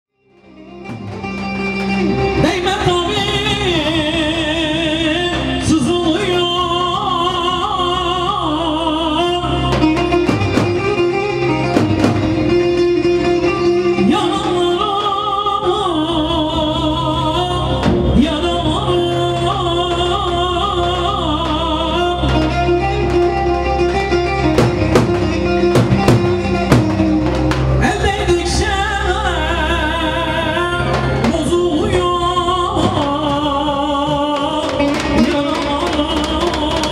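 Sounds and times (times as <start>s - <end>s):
ornamented melody over low notes: 0.2s - 36.9s
person singing: 1.3s - 36.9s
sharp drum hits: 24.5s - 27.9s.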